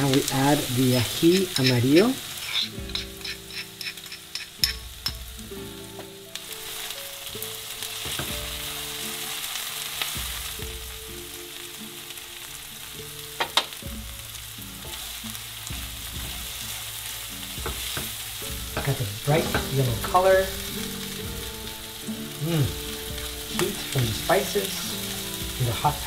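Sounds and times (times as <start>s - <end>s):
vegetables sizzling in oil: 0.0s - 26.0s
spatula scraping a pan: 1.1s - 5.2s.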